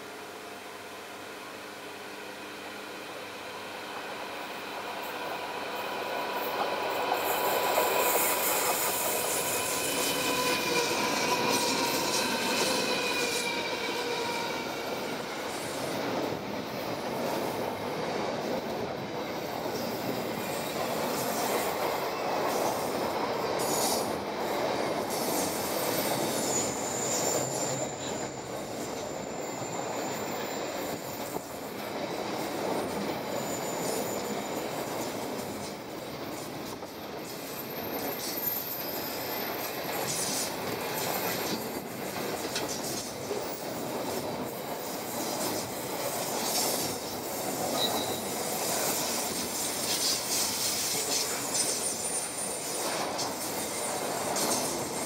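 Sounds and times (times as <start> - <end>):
diesel locomotive engine: 0.0 - 55.0
train wheels rumbling on rails: 0.0 - 55.0
high wheel squeal: 7.1 - 15.9, 25.1 - 31.8, 32.9 - 35.2, 36.9 - 43.6, 44.5 - 55.0.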